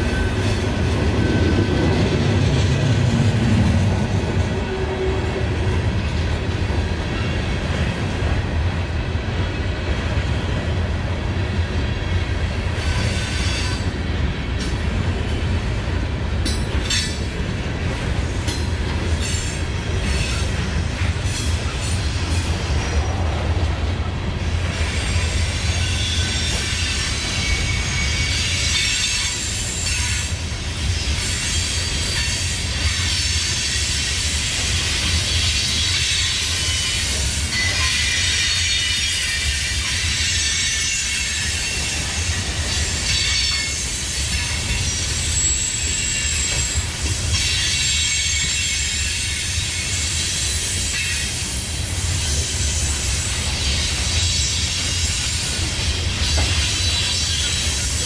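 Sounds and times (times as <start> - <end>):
train wheels rumbling on track: 0.0 - 58.0
high-pitched wheel squeal: 43.1 - 46.8.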